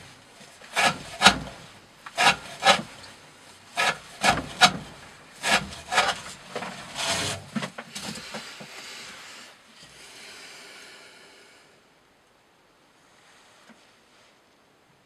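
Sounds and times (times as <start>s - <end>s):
knife slicing through rope: 0.7s - 1.6s, 2.2s - 3.0s, 3.8s - 4.8s, 5.4s - 6.3s.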